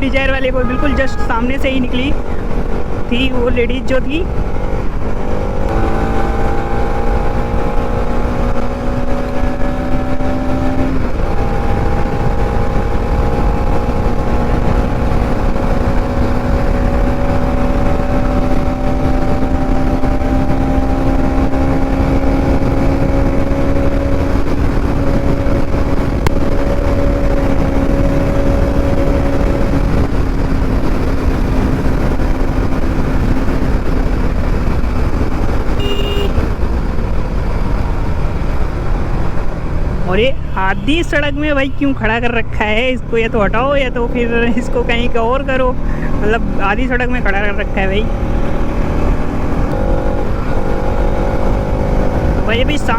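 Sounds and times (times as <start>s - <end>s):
wind on microphone: 0.0s - 41.7s
motorcycle engine at speed: 0.0s - 52.9s.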